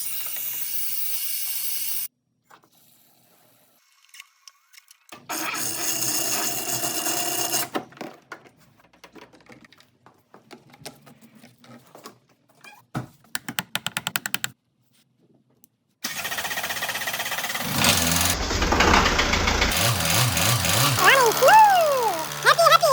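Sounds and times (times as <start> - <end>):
diesel engine starting and running: 16.1 - 22.9
mechanical tool running: 16.1 - 22.9.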